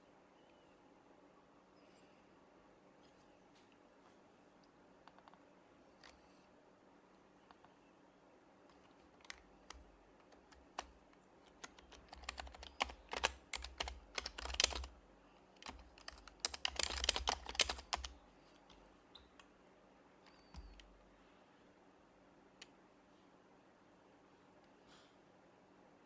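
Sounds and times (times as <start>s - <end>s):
keyboard typing: 8.7s - 19.5s, 20.2s - 21.0s.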